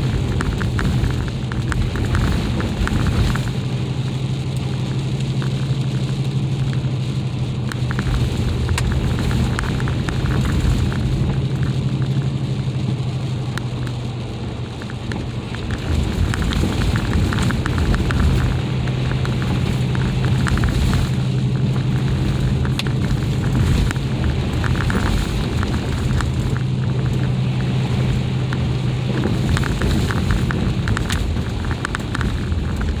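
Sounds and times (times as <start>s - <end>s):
engine and tyre drone: 0.0s - 33.0s
ice crackling under wheels: 0.0s - 33.0s.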